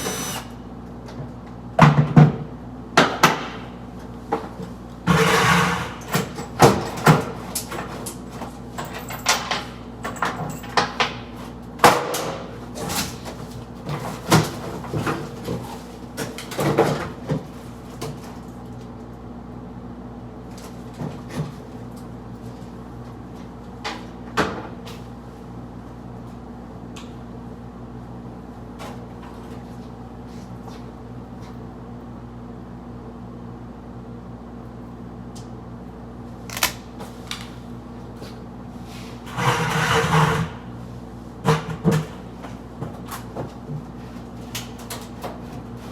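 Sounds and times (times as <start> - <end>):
knocks and rattles of microwave: 1.7 - 4.6, 8.9 - 13.3, 23.8 - 24.9.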